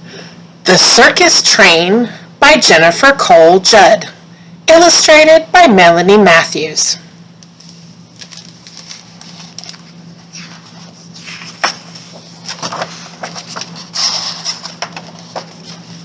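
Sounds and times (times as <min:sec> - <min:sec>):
steady low hum: 0:00.0 - 0:16.0
book pages rustling: 0:07.5 - 0:16.0.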